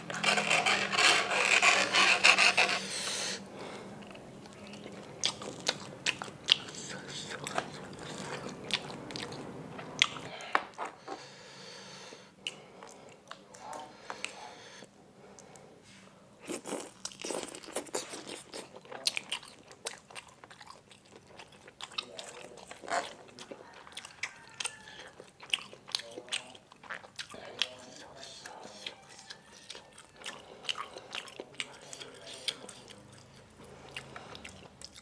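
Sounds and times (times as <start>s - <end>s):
wet chewing and biting: 4.0s - 10.3s, 16.5s - 35.0s.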